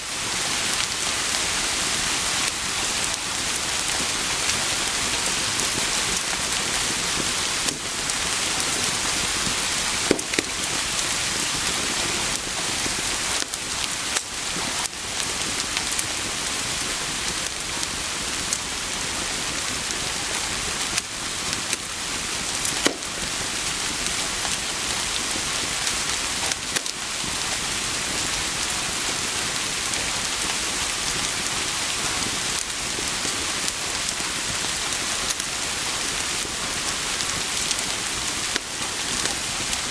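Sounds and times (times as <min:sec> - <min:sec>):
rain pouring: 0:00.0 - 0:39.9
wood fire crackling: 0:00.0 - 0:39.9.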